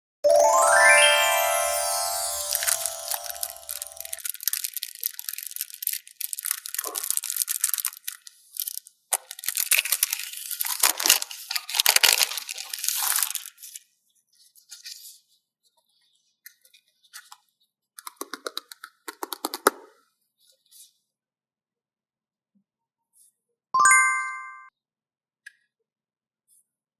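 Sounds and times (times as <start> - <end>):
chime ringing: 0.2 - 4.2, 23.8 - 24.7.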